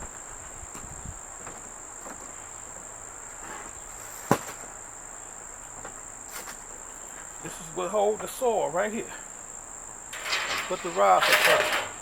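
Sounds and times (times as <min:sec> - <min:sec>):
high-pitched insect trill: 0:04.8 - 0:12.0.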